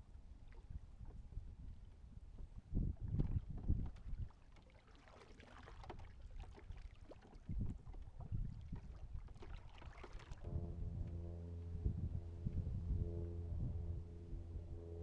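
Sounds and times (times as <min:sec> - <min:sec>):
water noise around kayak: 0:00.0 - 0:11.5
wind buffeting microphone: 0:01.0 - 0:04.3, 0:11.7 - 0:14.8
music with long held notes: 0:10.5 - 0:15.0.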